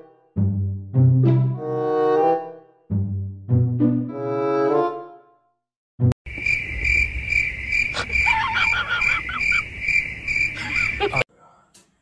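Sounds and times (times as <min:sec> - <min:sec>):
insect trilling: 0:06.4 - 0:11.2
short squeaky insect calls: 0:06.4 - 0:11.2.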